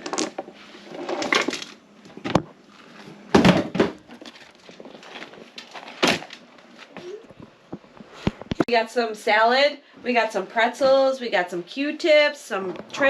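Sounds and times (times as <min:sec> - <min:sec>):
crunching and rustling of handling: 0:00.0 - 0:03.3, 0:04.0 - 0:07.3.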